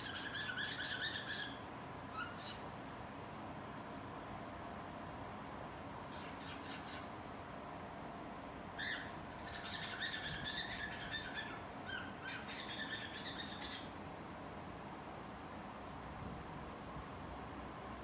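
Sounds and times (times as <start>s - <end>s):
cockatiel chirping: 0.0s - 2.6s, 6.1s - 7.0s, 8.8s - 13.9s.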